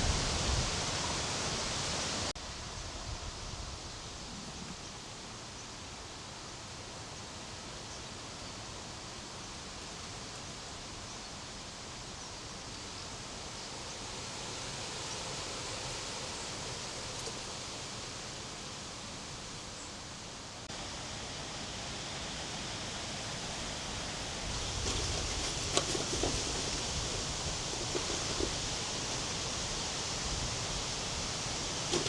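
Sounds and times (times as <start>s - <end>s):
outdoor hiss: 0.0s - 32.0s
faint rustling: 24.5s - 32.0s.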